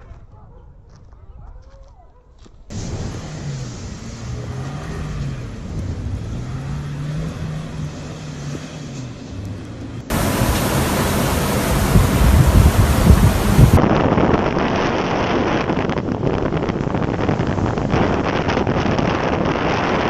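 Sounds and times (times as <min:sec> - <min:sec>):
low hum: 0:10.1 - 0:13.8
blizzard wind blowing: 0:10.1 - 0:20.0
wind buffeting microphone: 0:10.1 - 0:20.0.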